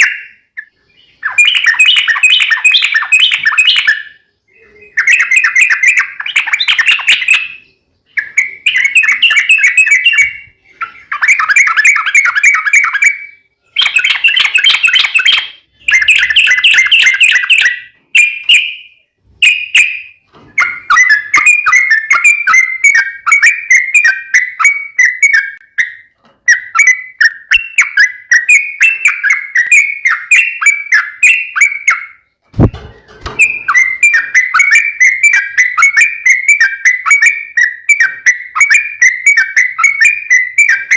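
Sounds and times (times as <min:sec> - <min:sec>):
bird singing chattering phrases: 0:00.0 - 0:40.9
brief thump: 0:32.5 - 0:33.6.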